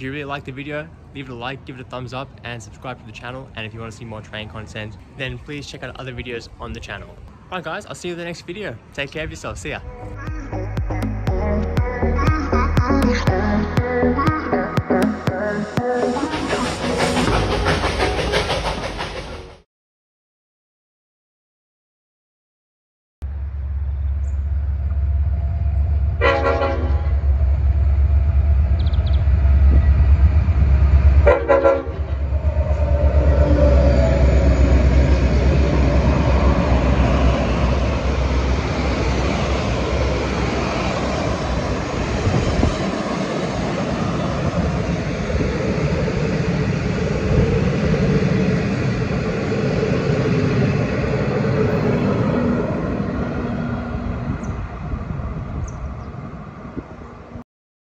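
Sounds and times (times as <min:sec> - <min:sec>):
locomotive engine rumble: 0:15.8 - 0:19.6, 0:23.3 - 0:57.2
train horn blasts: 0:26.2 - 0:27.3, 0:31.2 - 0:32.1.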